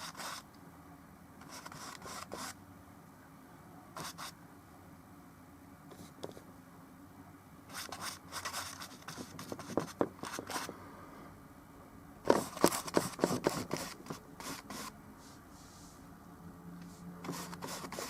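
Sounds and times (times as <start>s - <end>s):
painting tools scraping paint: 1.4s - 2.6s, 7.7s - 10.7s, 12.3s - 14.9s, 17.2s - 18.0s.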